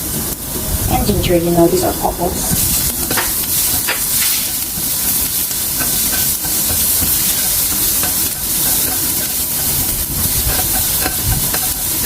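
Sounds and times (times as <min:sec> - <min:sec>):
garlic sizzling in oil: 0:02.4 - 0:12.0.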